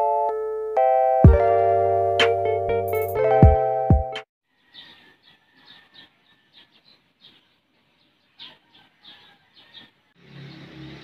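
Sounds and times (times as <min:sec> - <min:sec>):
faint small birds chirping: 0:04.5 - 0:11.0.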